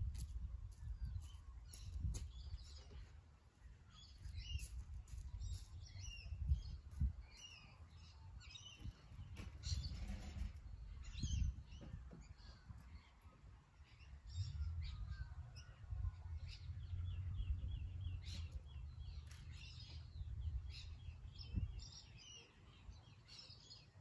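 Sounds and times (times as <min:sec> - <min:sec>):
birds chirping: 0:00.8 - 0:24.0
low uneven rumble: 0:13.8 - 0:21.9.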